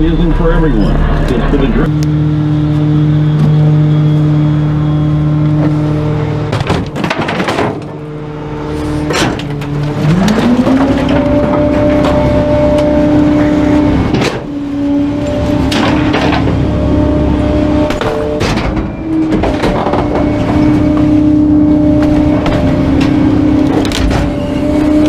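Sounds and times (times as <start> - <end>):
truck engine running and revving: 0.0 - 25.0
sharp knocks and bangs: 6.5 - 8.0, 9.0 - 12.4, 17.8 - 21.2.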